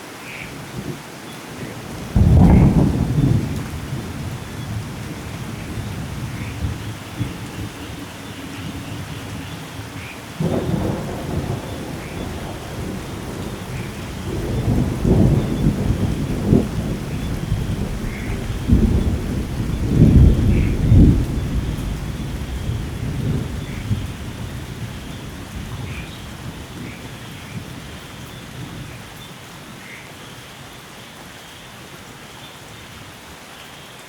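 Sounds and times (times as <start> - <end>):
heavy rain: 0.0 - 34.0
thunder rolling: 1.9 - 27.9.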